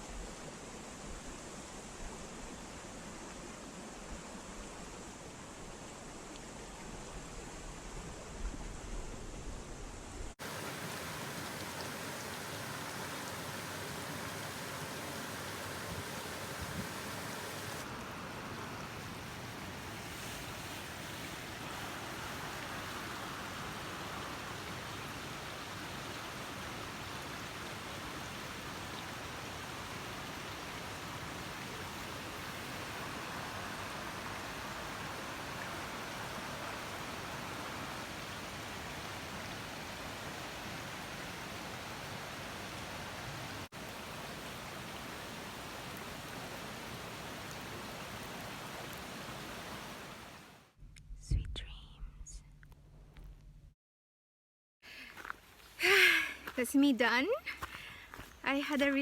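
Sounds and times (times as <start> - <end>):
waterfall pouring: 10.4 - 50.6.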